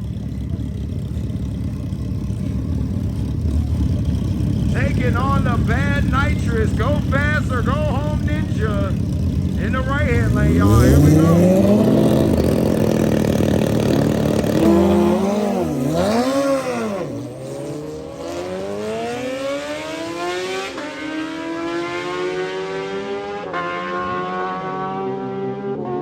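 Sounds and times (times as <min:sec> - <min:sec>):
motorcycles accelerating hard: 0:00.0 - 0:26.0.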